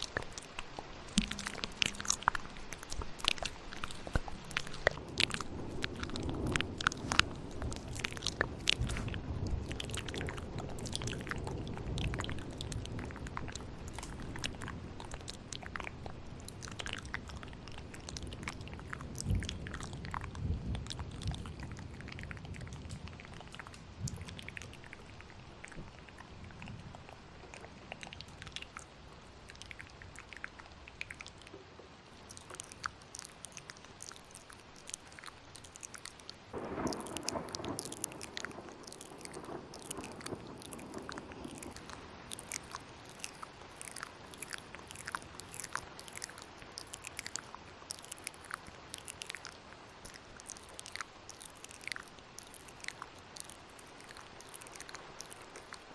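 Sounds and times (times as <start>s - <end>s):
wet mouth clicks and smacks: 0.0s - 13.1s, 27.5s - 31.6s, 32.2s - 55.9s
thunderstorm rumble: 1.1s - 27.0s, 36.5s - 44.4s.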